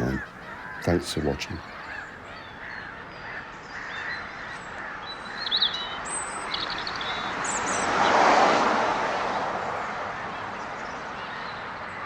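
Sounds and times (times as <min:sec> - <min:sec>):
robin singing: 0:00.0 - 0:03.0.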